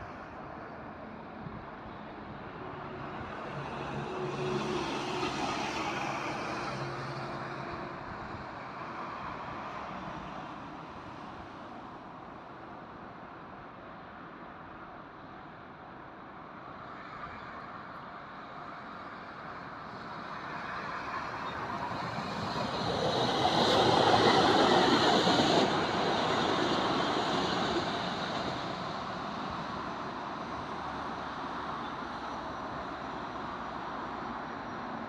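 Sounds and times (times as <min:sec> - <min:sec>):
electric train passing: 0:20.2 - 0:31.6.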